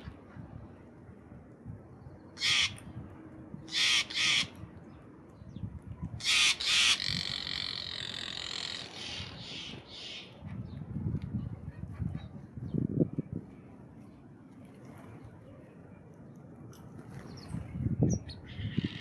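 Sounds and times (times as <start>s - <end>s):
harsh bird calls: 2.3s - 2.8s, 3.7s - 4.6s, 6.2s - 10.4s, 18.3s - 19.0s.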